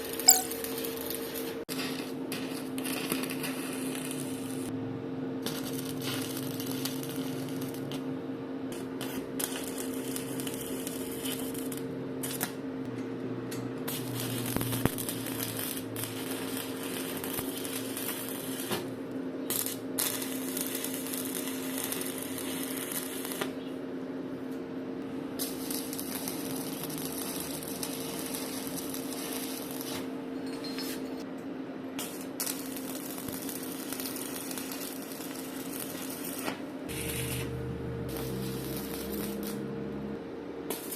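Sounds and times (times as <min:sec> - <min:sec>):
welding arc crackling: 0:25.4 - 0:30.0, 0:32.0 - 0:40.0
low electrical hum: 0:34.0 - 0:40.9.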